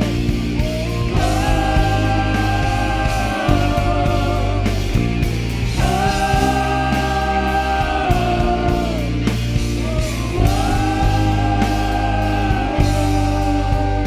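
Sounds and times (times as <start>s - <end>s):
rock band playing: 0.0s - 14.0s
singer holding long notes: 0.0s - 14.0s.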